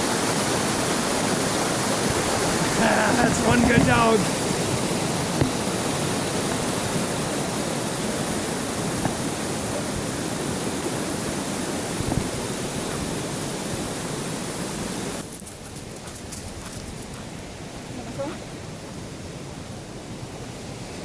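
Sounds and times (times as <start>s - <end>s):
stream water rushing: 0.0s - 16.0s, 16.6s - 21.0s.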